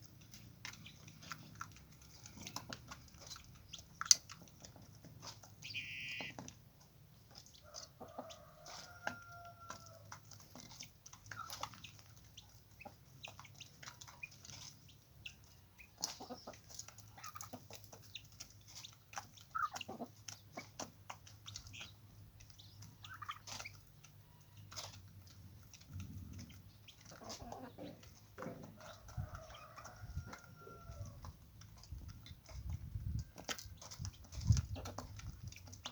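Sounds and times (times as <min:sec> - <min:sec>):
chickens clucking: 0:00.0 - 0:35.9
falling bird call: 0:05.6 - 0:06.4.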